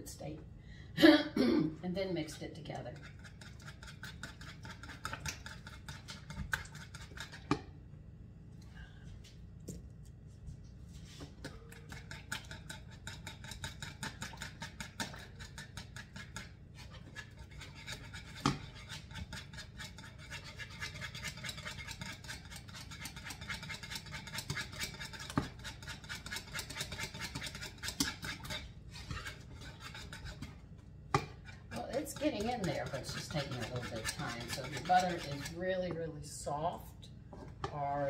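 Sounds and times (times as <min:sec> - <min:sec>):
whisk scraping in bowl: 0:02.6 - 0:07.7, 0:11.0 - 0:36.6
whisk knocking against bowl: 0:11.9 - 0:16.5, 0:17.2 - 0:36.0.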